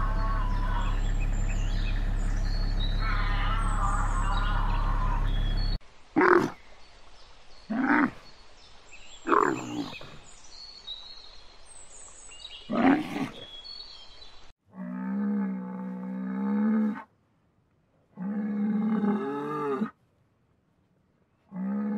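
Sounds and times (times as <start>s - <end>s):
camel grunting roar: 0.0s - 6.6s
cow mooing: 2.4s - 6.4s.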